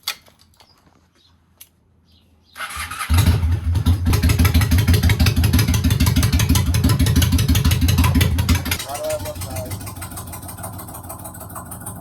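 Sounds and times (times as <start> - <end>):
motorcycle starter turning over: 2.6 - 12.0
motorcycle engine idling: 2.7 - 12.0.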